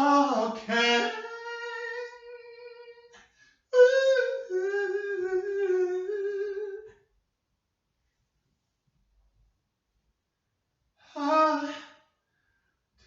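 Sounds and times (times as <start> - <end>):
person humming: 3.8 - 6.9, 11.1 - 12.0.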